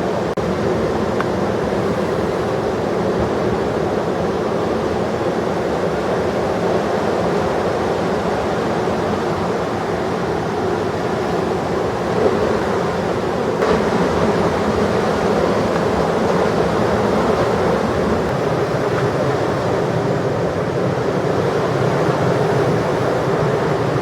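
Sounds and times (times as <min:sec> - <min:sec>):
ocean surf breaking: 0:00.0 - 0:03.8, 0:08.7 - 0:24.0.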